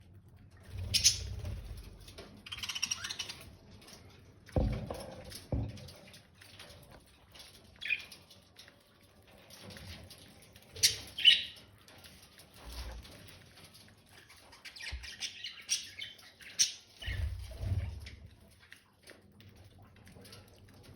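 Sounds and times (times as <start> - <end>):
budgerigars chirping and squawking: 0.7 - 3.5, 10.7 - 11.6, 14.2 - 17.9
dull thumps: 4.6 - 5.9.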